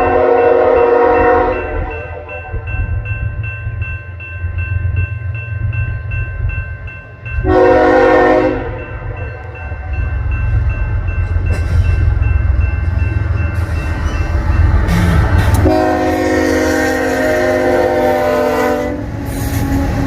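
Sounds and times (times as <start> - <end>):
train horn blast: 0.0 - 2.3, 7.4 - 8.9, 14.9 - 20.0
diesel locomotives rumbling: 0.0 - 20.0.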